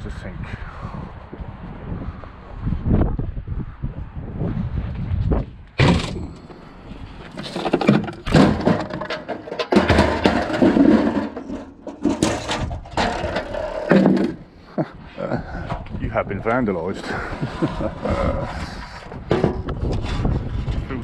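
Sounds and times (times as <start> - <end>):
metal sink clanking and scraping: 7.3 - 14.4, 19.2 - 19.8.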